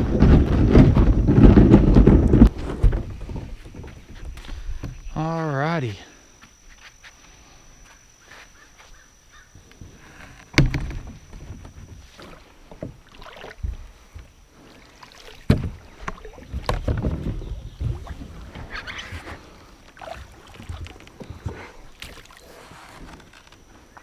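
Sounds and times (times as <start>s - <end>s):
knocks against kayak hull: 10.5s - 12.0s, 15.4s - 18.7s.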